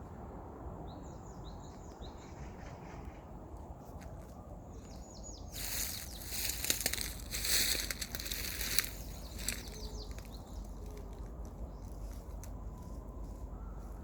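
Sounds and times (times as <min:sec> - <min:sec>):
wind rustling tree branches: 0:00.0 - 0:14.0
bird chirping: 0:04.7 - 0:12.4.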